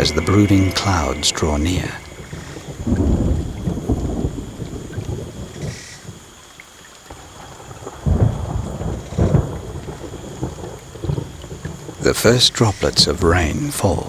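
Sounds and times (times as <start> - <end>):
thunder rumbling: 0.0 - 5.6.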